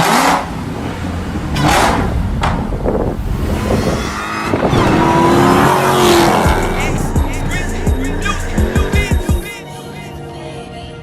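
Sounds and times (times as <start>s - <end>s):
car engine and exhaust: 0.0s - 9.5s
wind noise on microphone: 2.0s - 8.4s.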